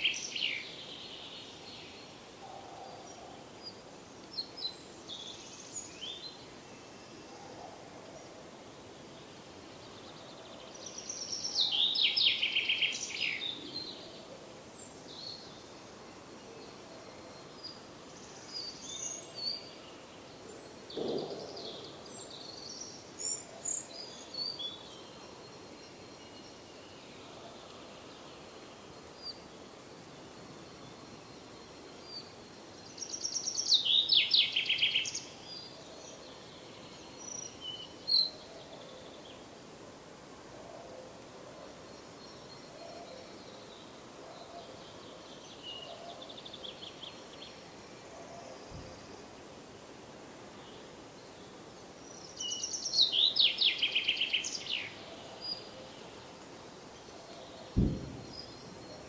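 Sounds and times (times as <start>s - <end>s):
steady background hiss: 0.0s - 59.0s
bird chirps: 57.2s - 59.0s.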